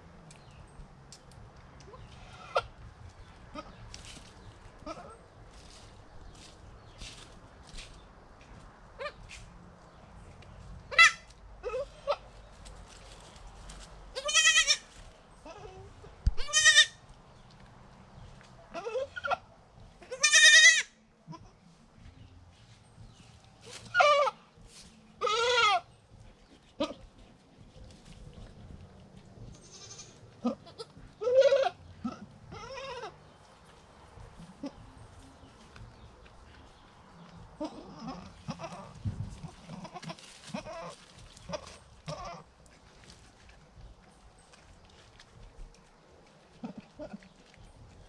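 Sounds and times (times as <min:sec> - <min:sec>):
low background hum: 0:00.0 - 0:48.0
goats bleating: 0:14.2 - 0:17.0, 0:20.0 - 0:21.6, 0:25.2 - 0:25.9, 0:29.5 - 0:33.2, 0:37.6 - 0:42.5.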